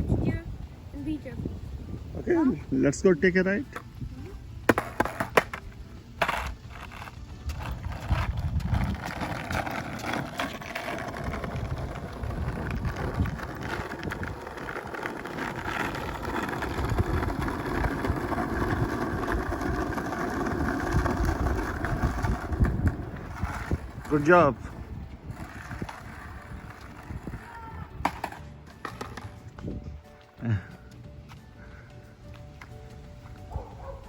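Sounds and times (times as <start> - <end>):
skateboard wheels rumbling: 0.0 - 34.0
skateboard knocks: 4.7 - 6.4.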